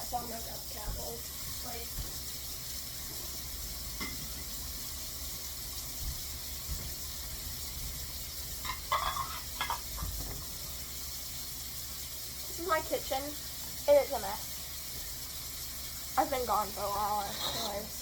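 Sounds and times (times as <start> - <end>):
kitchen tap running: 0.0 - 18.0.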